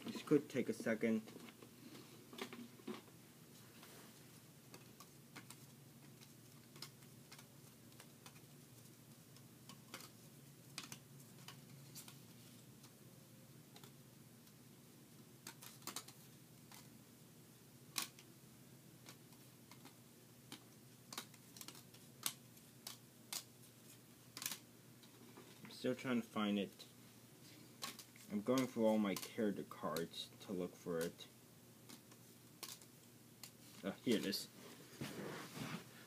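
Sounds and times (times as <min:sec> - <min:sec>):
low room hum: 0:00.0 - 0:36.0.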